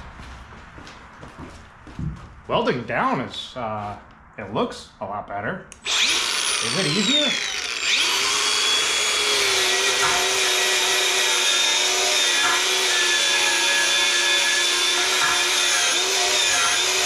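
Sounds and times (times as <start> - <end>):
motor whining: 5.8 - 17.0.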